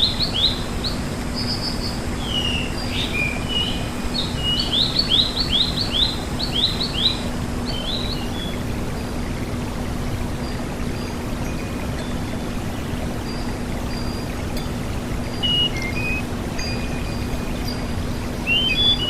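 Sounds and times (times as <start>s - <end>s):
rushing water: 0.0s - 19.0s
songbird whistling: 15.3s - 19.0s.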